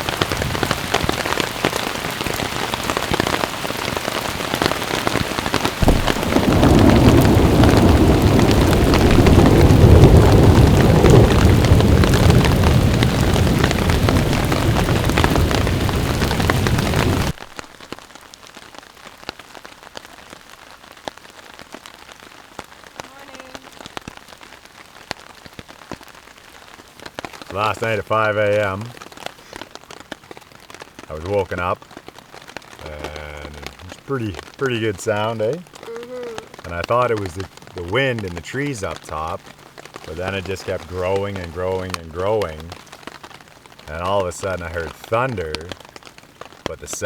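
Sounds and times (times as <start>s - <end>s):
heavy rain falling: 0.0s - 47.0s
rain drop ticks: 0.0s - 47.0s
low rumble of thunder: 5.7s - 17.4s.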